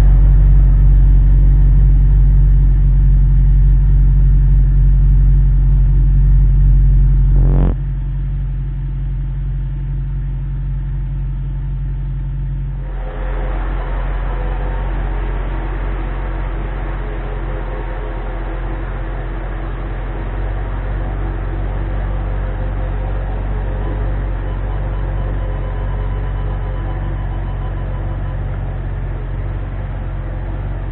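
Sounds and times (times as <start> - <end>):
car exhaust drone in cabin: 0.0 - 30.9
high steady hum: 0.0 - 30.9
road noise: 12.7 - 30.9.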